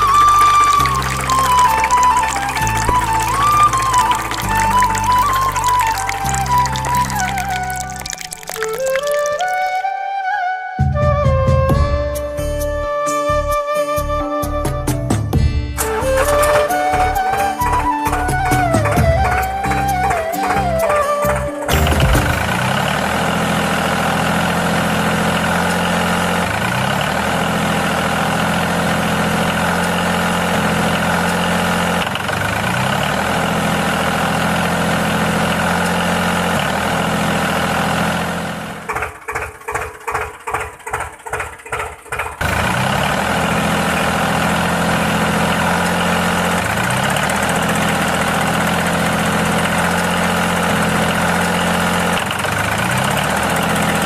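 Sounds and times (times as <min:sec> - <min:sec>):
tractor cultivator engine running: 0:00.0 - 0:07.0, 0:21.7 - 0:54.0.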